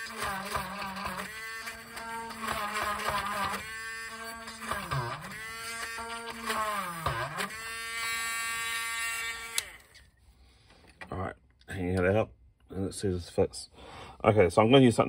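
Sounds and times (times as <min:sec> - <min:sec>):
electric drill whining: 0:00.0 - 0:10.2.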